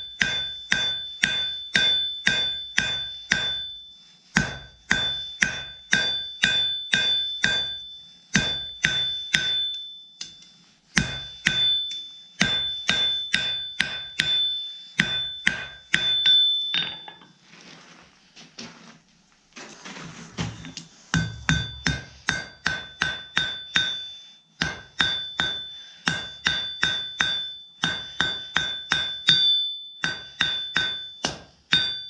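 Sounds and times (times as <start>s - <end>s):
hammer striking steel on anvil: 0.0s - 17.4s, 20.7s - 32.0s.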